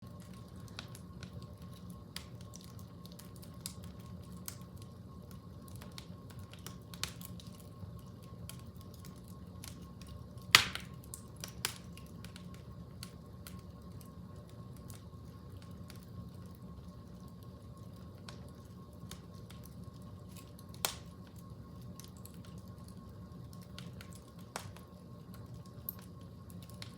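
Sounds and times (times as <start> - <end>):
fire crackling: 0.0 - 26.9
low steady hum: 0.0 - 26.9.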